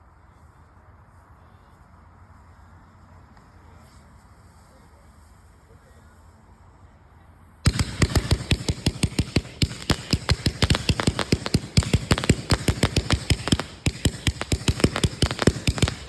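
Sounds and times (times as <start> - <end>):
firecrackers banging: 7.7 - 16.0.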